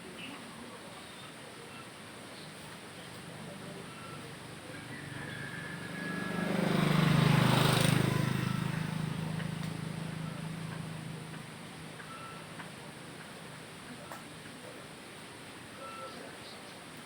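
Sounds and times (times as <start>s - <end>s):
vehicle passing by: 3.4s - 13.6s.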